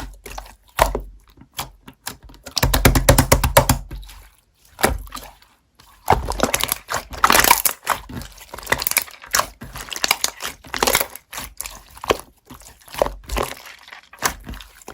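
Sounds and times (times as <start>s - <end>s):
slime squished by hand: 0.0s - 14.9s.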